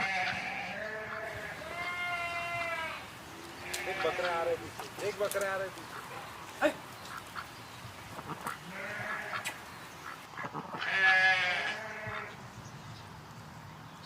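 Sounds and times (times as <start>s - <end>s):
goat bleating: 0.0s - 4.7s, 8.3s - 9.6s, 10.7s - 12.3s.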